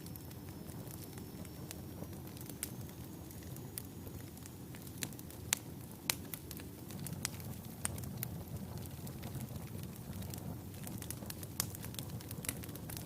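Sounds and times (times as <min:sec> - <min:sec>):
wood fire burning: 0:00.0 - 0:13.0.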